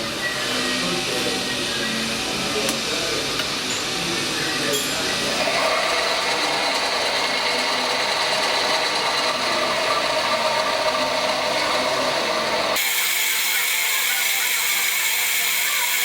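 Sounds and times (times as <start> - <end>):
machine tool whirring: 5.0 - 16.0.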